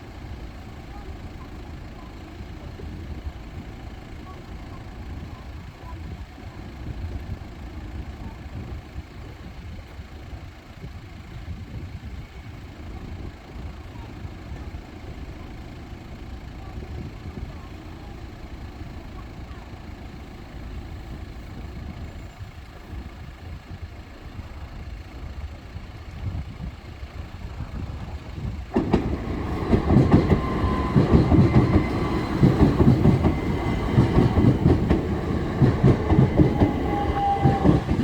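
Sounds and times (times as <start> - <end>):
vehicles idling in traffic: 0.0 - 38.0.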